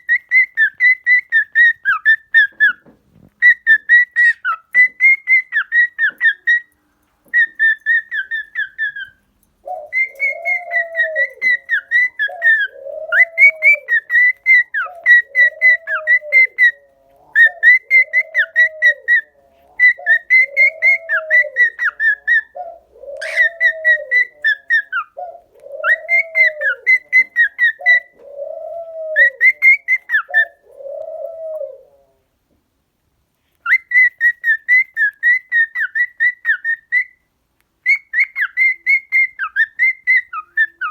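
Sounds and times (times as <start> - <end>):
cockatiels whistling: 0.0 - 30.6, 33.6 - 40.9
lower arched bird call: 9.7 - 28.0.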